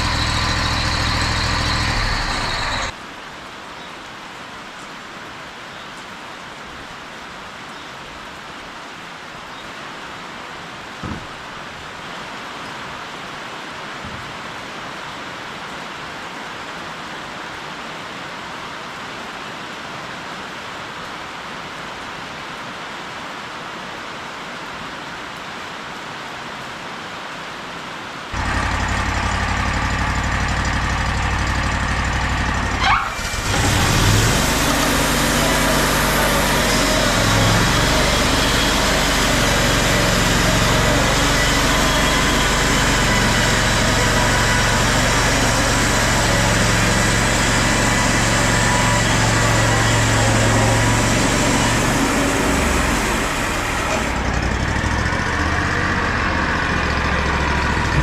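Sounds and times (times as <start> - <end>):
engine running: 0.0 - 3.0, 28.4 - 58.0.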